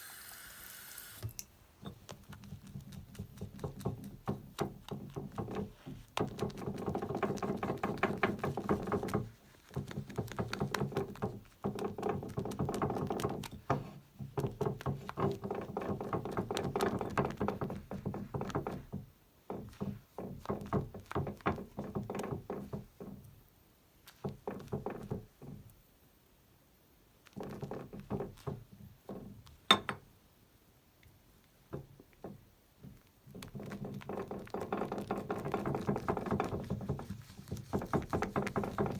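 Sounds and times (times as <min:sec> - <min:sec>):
brush scratching against bowl: 0:35.0 - 0:38.9.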